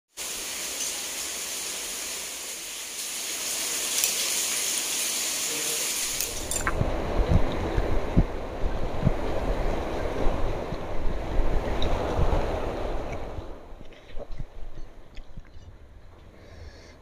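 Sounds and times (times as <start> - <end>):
heavy rain hissing: 0.1 - 13.8
low rumble: 6.3 - 16.4.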